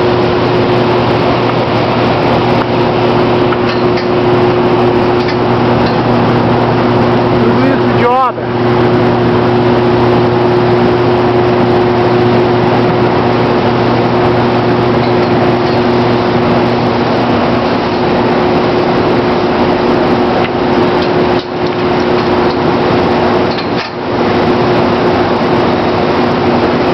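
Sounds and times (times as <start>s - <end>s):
machinery low hum: 0.0s - 26.9s.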